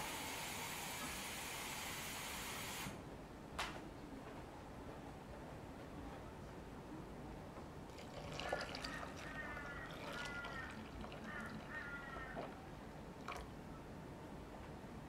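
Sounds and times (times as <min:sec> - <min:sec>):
bird calling: 0:08.5 - 0:12.7.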